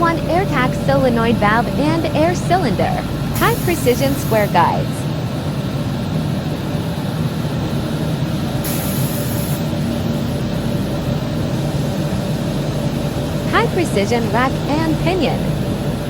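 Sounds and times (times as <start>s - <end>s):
machine hiss: 3.3s - 4.6s, 8.6s - 10.1s.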